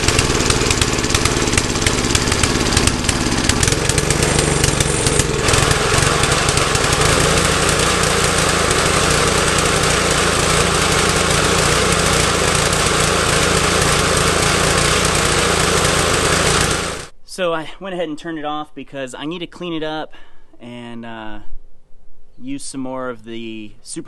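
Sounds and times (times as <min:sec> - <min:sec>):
lawn mower engine running: 0:00.0 - 0:17.1.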